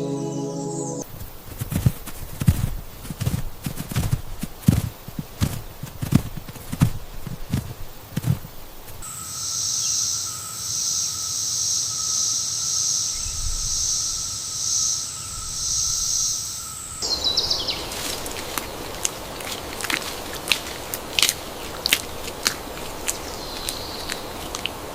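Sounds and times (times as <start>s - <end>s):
rustling: 1.1s - 9.0s, 17.6s - 24.9s
insects shrilling chorus: 9.0s - 18.9s.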